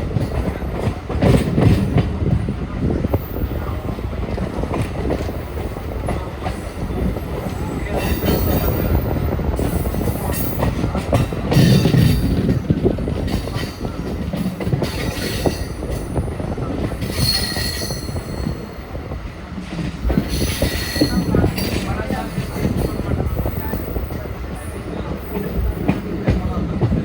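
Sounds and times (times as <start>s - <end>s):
train wheels clattering over rails: 0.0s - 27.0s
train wheel squeal: 13.3s - 16.1s, 16.9s - 18.8s, 20.1s - 26.1s.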